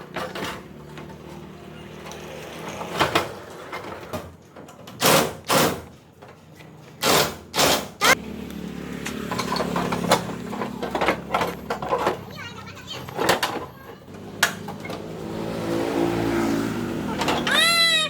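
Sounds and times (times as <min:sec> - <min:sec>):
tool knocking or scraping: 0:07.0 - 0:08.2.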